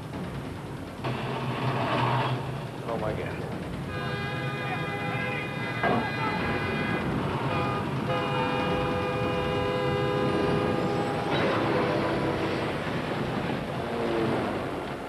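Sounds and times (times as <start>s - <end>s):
moving train rushing: 0.0s - 15.0s
train air horn blast: 3.9s - 12.8s.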